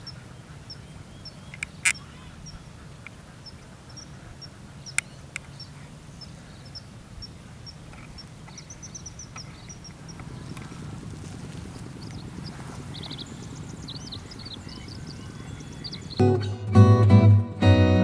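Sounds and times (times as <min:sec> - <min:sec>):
steady low hum: 0:00.0 - 0:16.8
sharp clicks: 0:01.4 - 0:05.8, 0:06.7 - 0:10.7.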